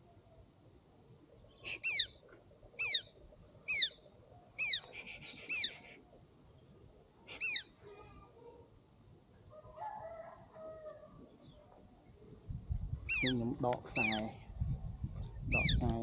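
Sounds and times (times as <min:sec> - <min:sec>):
small bird calling: 0:01.4 - 0:08.4, 0:13.0 - 0:14.6, 0:15.3 - 0:15.9.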